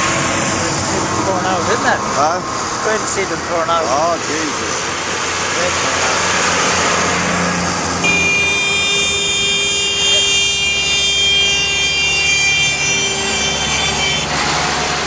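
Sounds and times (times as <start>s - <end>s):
tractor engines rumbling: 0.0s - 15.0s
vehicle horn long high blast: 8.0s - 14.4s.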